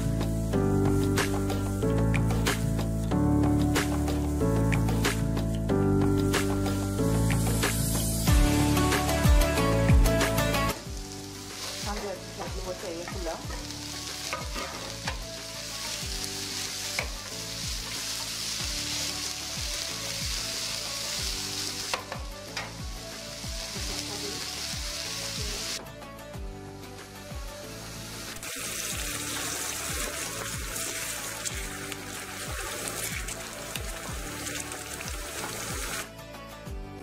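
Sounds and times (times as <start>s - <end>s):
vegetables sizzling in a frying pan: 0.0s - 5.3s, 6.2s - 25.8s, 27.0s - 36.1s.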